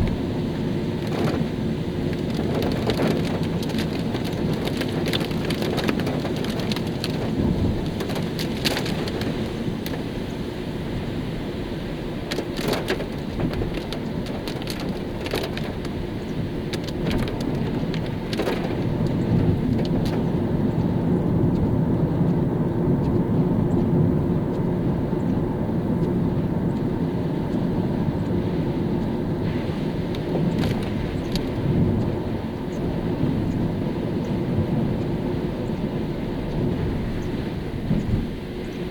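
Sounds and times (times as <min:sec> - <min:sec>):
car road rumble: 0:00.0 - 0:38.9
tyres hissing on wet road: 0:24.8 - 0:38.9.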